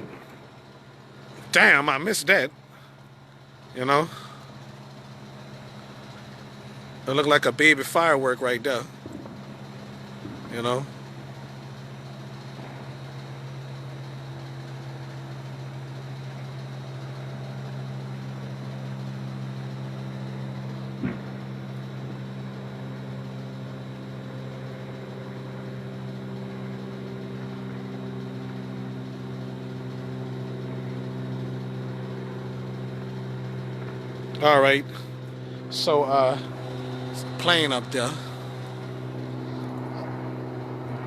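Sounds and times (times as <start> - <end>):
low mechanical hum with tones: 0.0 - 41.0
sharp pop: 21.0 - 21.4.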